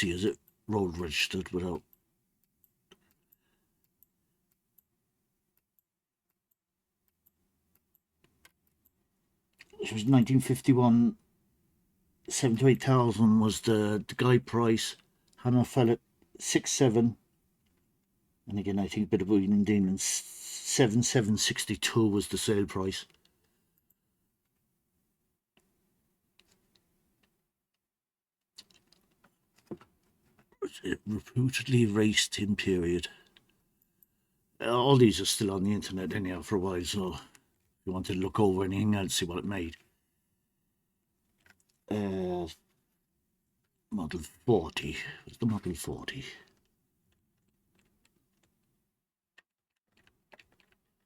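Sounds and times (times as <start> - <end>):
computer mouse clicks: 26.4 - 27.3, 28.6 - 30.5, 49.9 - 51.0.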